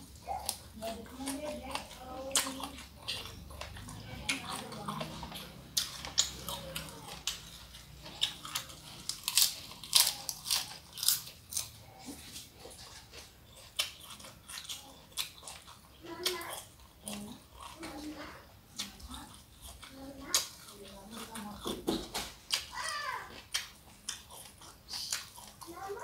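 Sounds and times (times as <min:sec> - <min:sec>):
crunching lettuce leaf: 0:00.2 - 0:18.1.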